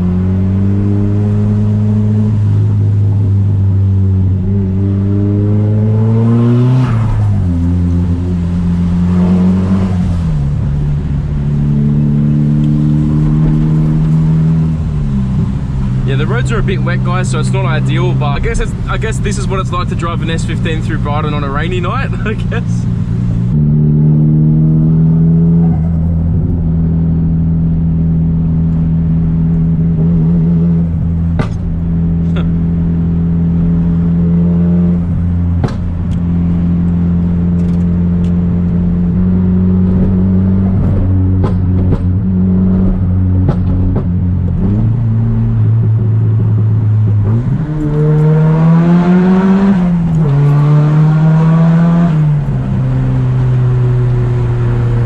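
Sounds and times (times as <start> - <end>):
car engine cruising and accelerating: 0.0 - 55.0
sharp knocks: 31.4 - 31.8, 35.6 - 35.9.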